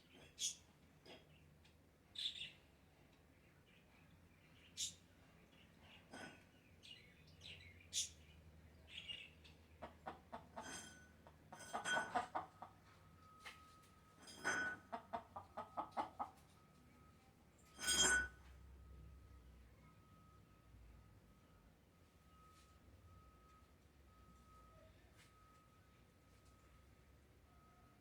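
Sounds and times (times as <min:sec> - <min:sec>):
chickens clucking: 0:09.6 - 0:12.9, 0:14.8 - 0:16.5.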